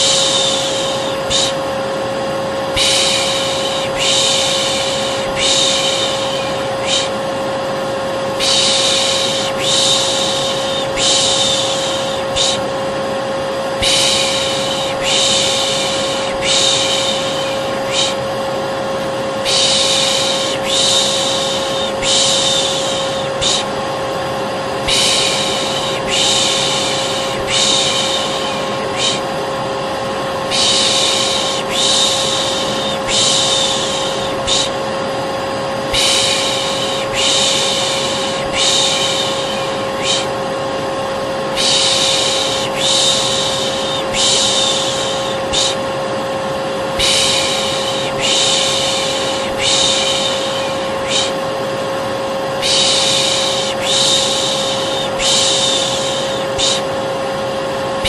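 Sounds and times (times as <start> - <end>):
person shushing: 0.0 - 1.6, 2.8 - 7.2, 8.4 - 12.7, 13.8 - 18.3, 19.4 - 23.8, 24.8 - 29.4, 30.4 - 34.9, 35.9 - 40.5, 41.5 - 45.9, 47.0 - 51.5, 52.6 - 57.0
hair dryer humming: 0.0 - 58.0.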